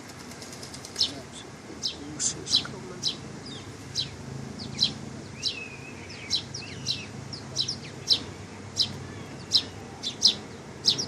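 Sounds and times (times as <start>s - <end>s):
small birds chirping: 0.0s - 11.0s
lower slurred bird calls: 0.6s - 11.0s.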